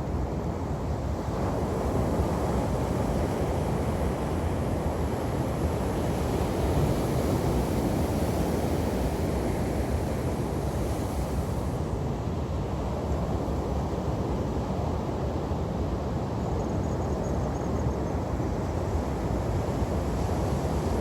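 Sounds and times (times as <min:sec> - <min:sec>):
waves breaking on a beach: 0:00.6 - 0:16.2.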